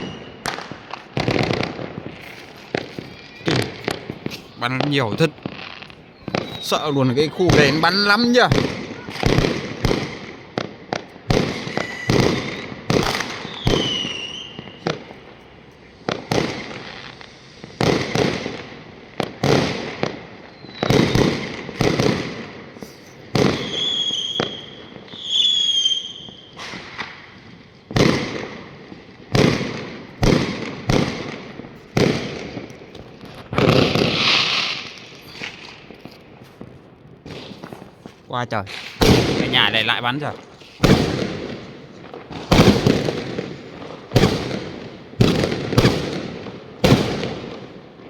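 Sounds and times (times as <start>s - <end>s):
fireworks bangs: 0.0s - 48.0s
whistling fireworks: 0.0s - 48.0s.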